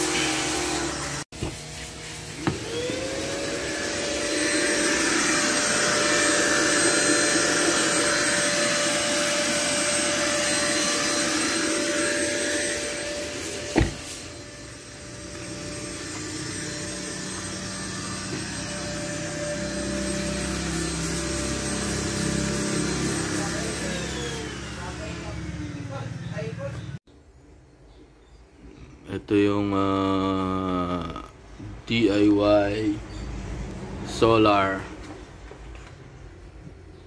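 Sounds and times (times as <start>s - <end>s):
electric motor running: 0.0s - 27.0s.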